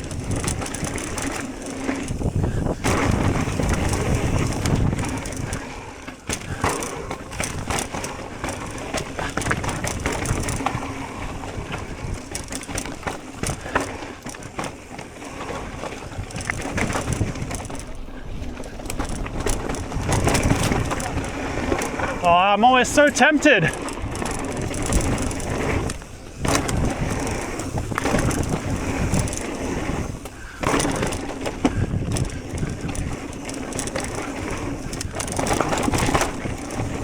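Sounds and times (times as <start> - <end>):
bike and chain rattling: 0.0 - 37.0
bike tyres on loose dirt: 0.0 - 37.0.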